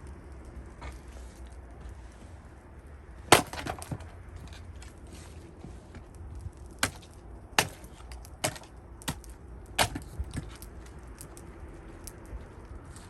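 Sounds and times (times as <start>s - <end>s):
axe chopping wood: 3.3s - 4.1s, 6.8s - 10.6s.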